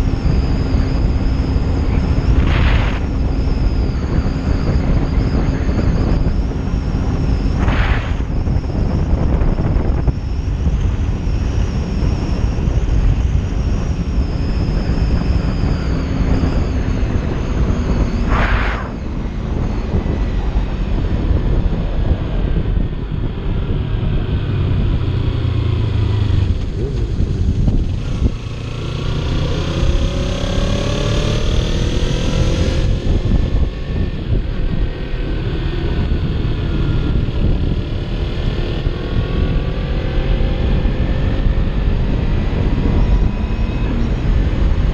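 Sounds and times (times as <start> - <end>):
motorcycle engine accelerating: 0.0 - 44.9
wind rumble on microphone: 0.0 - 44.9
short whoosh: 2.3 - 3.1, 7.5 - 8.6, 17.9 - 19.5.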